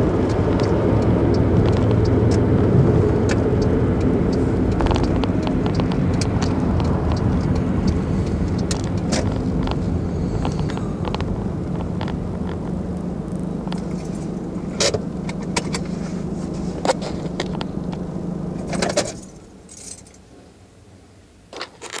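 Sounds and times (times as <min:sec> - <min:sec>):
car engine idling: 0:00.0 - 0:21.5
keys jangling: 0:18.7 - 0:20.2.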